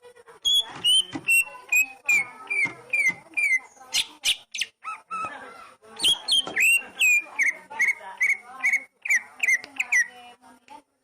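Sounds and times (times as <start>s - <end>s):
bird whistled song: 0.5s - 4.8s
bird rasping chatter: 0.5s - 5.4s, 6.0s - 10.2s.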